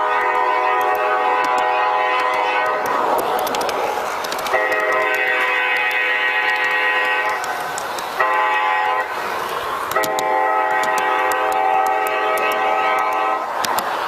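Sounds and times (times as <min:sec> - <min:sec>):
model locomotive horn: 0:00.0 - 0:03.0, 0:04.4 - 0:07.5, 0:08.2 - 0:09.2, 0:09.9 - 0:13.6
light sharp ticks: 0:00.2 - 0:08.2, 0:09.8 - 0:14.0.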